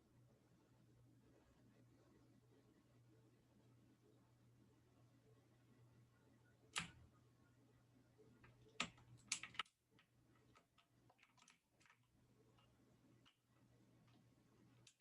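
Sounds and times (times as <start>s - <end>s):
faint hum: 0.0s - 15.0s
keyboard keys clicking: 6.7s - 7.0s, 8.4s - 13.4s.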